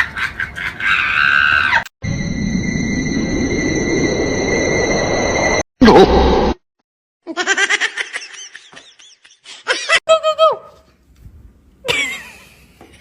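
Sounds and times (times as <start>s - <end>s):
laughter in rapid bursts: 7.3s - 10.0s, 11.9s - 12.6s.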